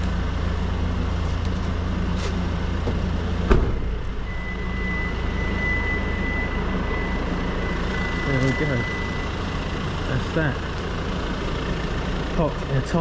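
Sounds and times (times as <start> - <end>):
motor vehicle rumble: 0.0 - 13.0
high-pitched electronic tone: 3.9 - 9.8.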